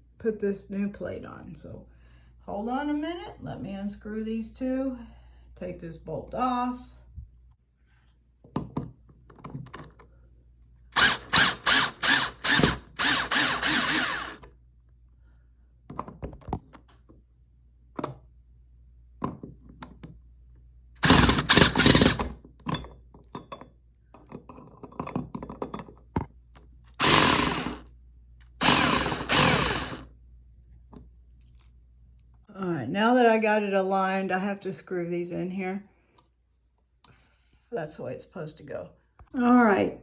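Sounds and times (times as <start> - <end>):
power drill running: 11.0 - 14.5, 21.0 - 22.3, 27.0 - 27.8, 28.6 - 30.1.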